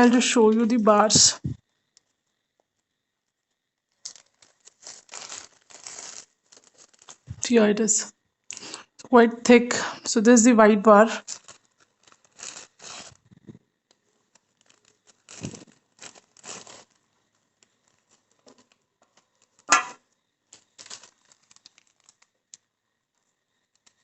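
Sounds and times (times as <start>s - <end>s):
plastic wrap crinkling: 0.0s - 8.9s, 11.0s - 24.0s
sharp loud crackle: 19.6s - 20.0s.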